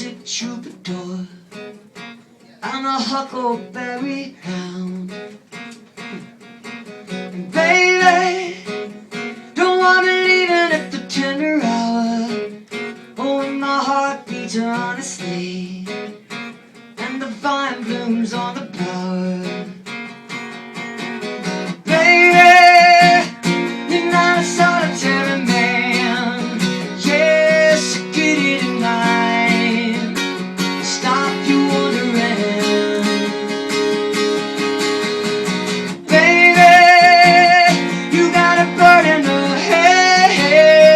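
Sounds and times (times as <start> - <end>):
strummed acoustic guitar: 0.0 - 40.9
woman singing: 36.0 - 40.9.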